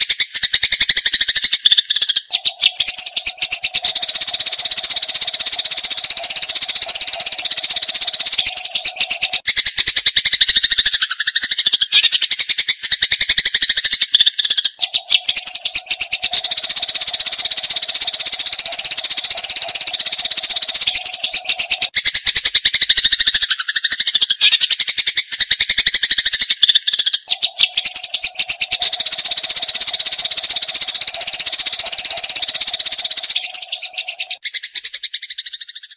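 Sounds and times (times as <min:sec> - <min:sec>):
sparrows chattering: 0:00.0 - 0:35.9.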